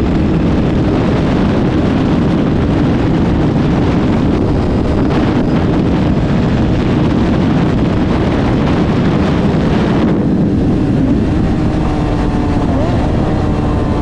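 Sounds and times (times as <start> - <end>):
low motorcycle engine drone: 0.0 - 14.0
wind rushing over microphone: 0.0 - 14.0.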